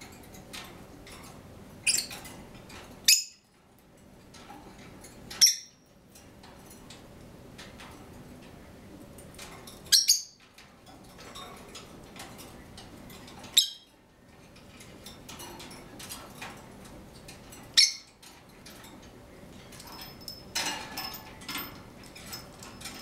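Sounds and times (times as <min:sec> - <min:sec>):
pet bird high-pitched calls: 0:03.1 - 0:03.4, 0:05.4 - 0:05.7, 0:09.9 - 0:10.4, 0:13.6 - 0:13.9, 0:17.8 - 0:18.1.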